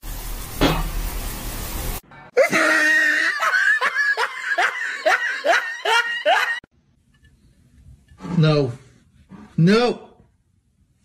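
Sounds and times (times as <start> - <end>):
person laughing: 2.4 - 6.7.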